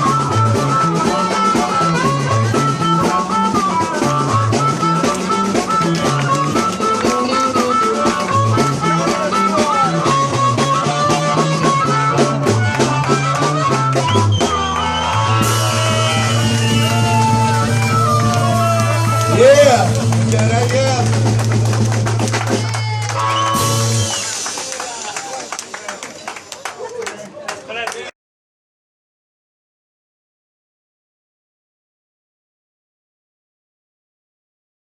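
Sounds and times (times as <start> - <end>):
bass line: 0.0 - 24.6
blues band playing: 0.0 - 27.7.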